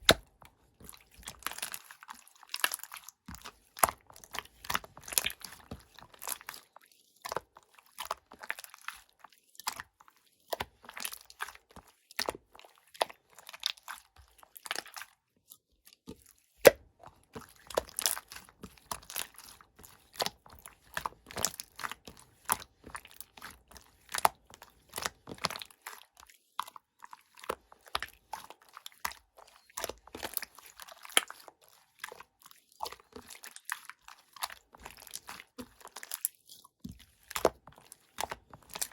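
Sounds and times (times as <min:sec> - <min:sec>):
slime squeezed with sticky pops: 0:00.0 - 0:00.3.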